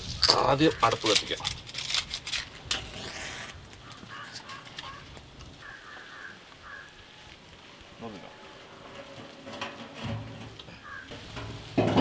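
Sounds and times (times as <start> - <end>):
quiet outdoor ambience: 0.0 - 12.0
bird calling: 3.8 - 7.4, 10.7 - 11.2.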